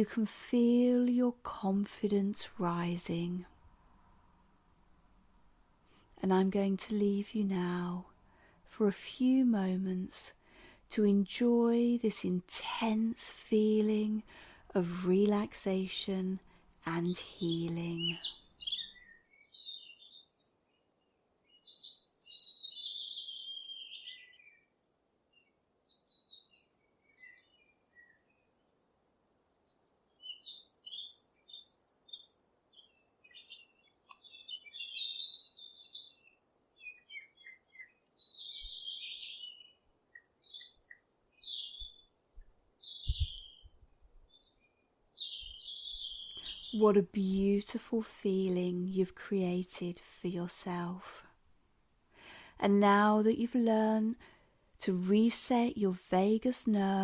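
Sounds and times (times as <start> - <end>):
birds chirping and warbling: 16.9 - 28.7, 29.6 - 47.2.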